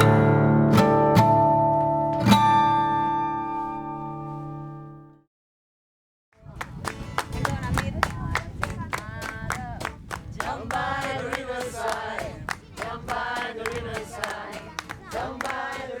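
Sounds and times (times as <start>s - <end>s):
rhythmic hand claps: 6.6s - 16.0s
voices singing together: 9.0s - 16.0s.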